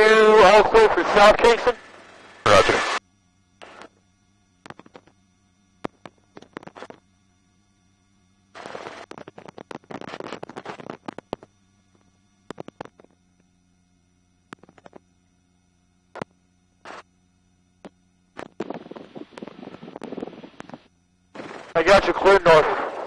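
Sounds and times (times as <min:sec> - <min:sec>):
crackling noise: 0:00.0 - 0:03.0, 0:03.6 - 0:04.0, 0:04.6 - 0:05.2, 0:05.8 - 0:07.1, 0:08.5 - 0:13.2, 0:14.4 - 0:15.1, 0:16.1 - 0:17.1, 0:17.8 - 0:23.0
faint steady hum: 0:00.0 - 0:23.0.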